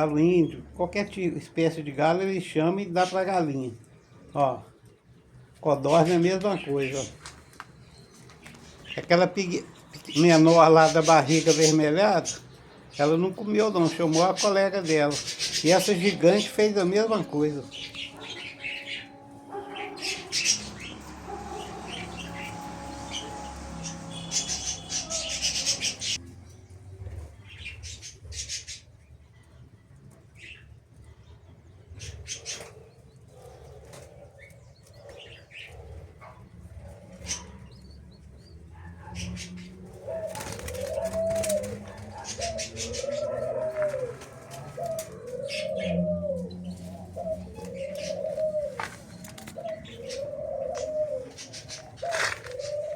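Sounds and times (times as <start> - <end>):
birds chirping: 0.0 - 52.9
low rising and falling bird call: 14.0 - 26.2, 37.3 - 52.9.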